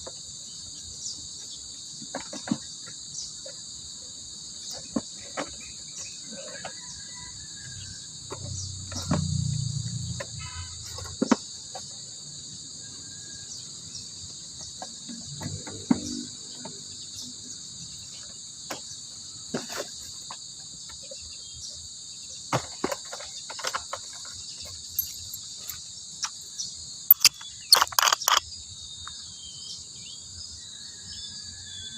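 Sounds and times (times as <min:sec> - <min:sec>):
high-pitched insect chorus: 0:00.0 - 0:31.9
sharp clicks and knocks: 0:27.1 - 0:28.4.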